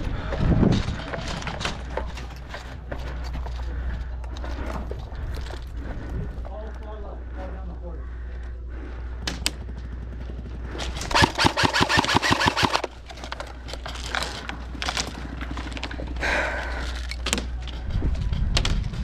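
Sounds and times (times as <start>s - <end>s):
airsoft rifle rapid fire: 11.1s - 12.9s
sharp clicks: 11.1s - 12.9s.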